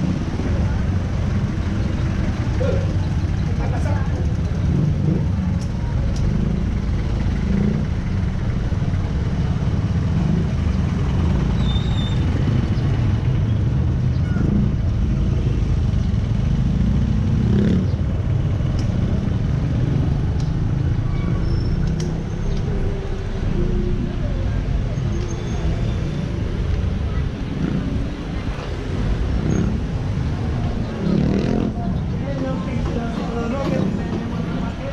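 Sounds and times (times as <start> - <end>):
vehicle noise: 0.0 - 34.9.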